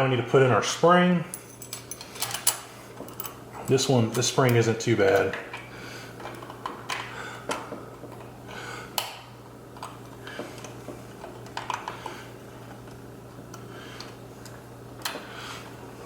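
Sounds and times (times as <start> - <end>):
steady low hum: 0.0 - 16.0
metal parts clinking: 1.3 - 3.4.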